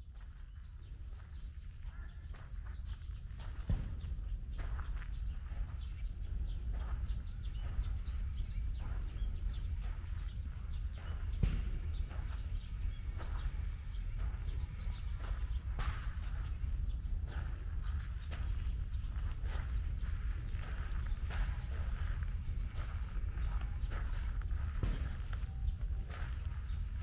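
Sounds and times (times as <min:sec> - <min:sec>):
low outdoor rumble: 0:00.0 - 0:27.0
songbirds chirping: 0:00.0 - 0:27.0
sharp tap: 0:11.0 - 0:12.3.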